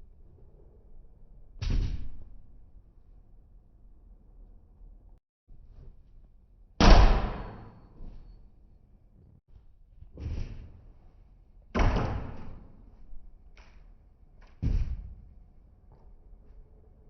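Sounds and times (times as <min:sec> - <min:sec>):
irregular thuds and knocks: 0:14.4 - 0:15.3.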